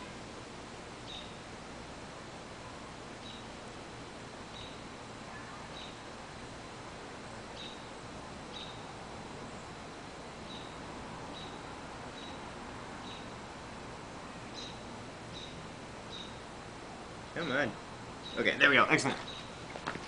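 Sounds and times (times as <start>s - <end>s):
steady background hiss: 0.0s - 20.0s
small bird chirping: 1.0s - 1.4s, 3.2s - 3.5s, 4.5s - 6.1s, 7.5s - 8.9s, 10.4s - 12.4s, 13.0s - 13.4s, 14.5s - 16.4s, 18.2s - 19.6s.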